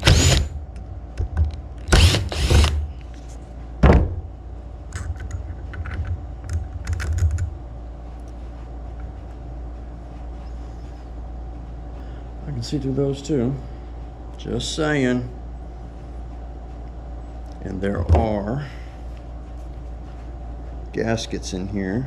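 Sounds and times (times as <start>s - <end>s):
metal parts knocking and clunking: 4.9s - 7.5s.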